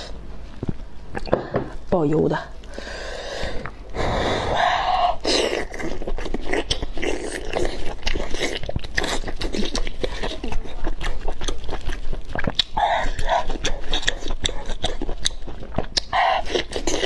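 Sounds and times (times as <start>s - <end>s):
chewing with mouth clicks: 5.2s - 17.0s.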